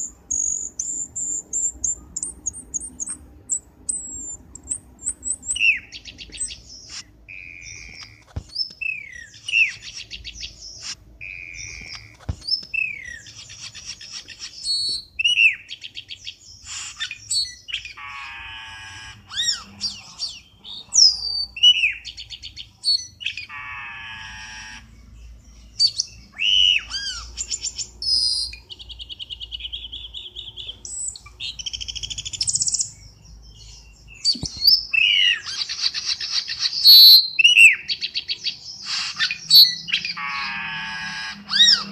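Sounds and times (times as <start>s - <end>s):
bird whistles and trills: 0.0s - 24.9s, 25.7s - 41.9s
harsh buzzy bird chatter: 0.0s - 41.9s.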